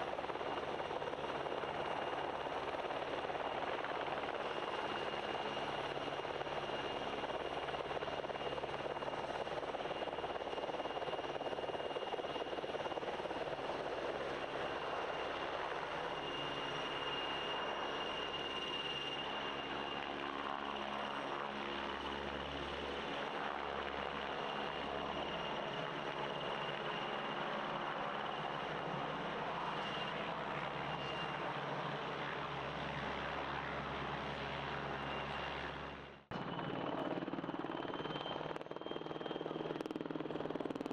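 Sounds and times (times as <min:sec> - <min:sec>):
helicopter rotor and engine noise: 0:00.0 - 0:40.9.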